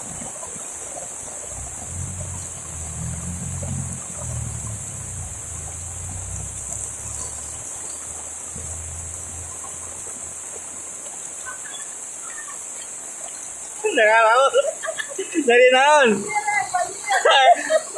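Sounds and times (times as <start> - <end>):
heavy rain and running water: 0.0 - 17.9
low rumble: 1.6 - 7.6.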